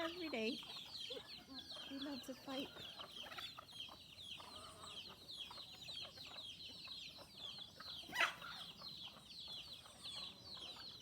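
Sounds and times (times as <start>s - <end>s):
chickens clucking and squabbling: 0.0s - 11.0s
chicken squawk: 7.5s - 9.2s.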